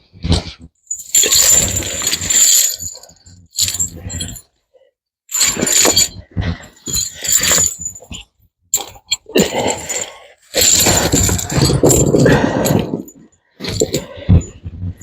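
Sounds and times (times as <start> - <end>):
steel tire chains rattling: 0.9 - 4.4, 5.3 - 8.1, 8.8 - 14.0.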